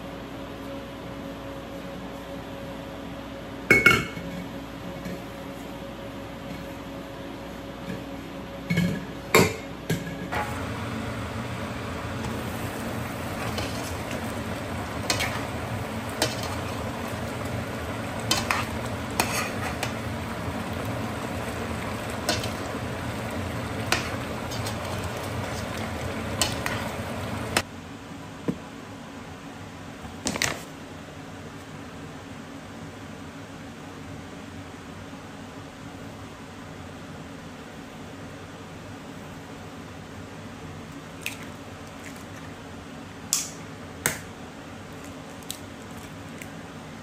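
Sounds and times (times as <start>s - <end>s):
food sizzling in a pot: 10.3s - 27.6s.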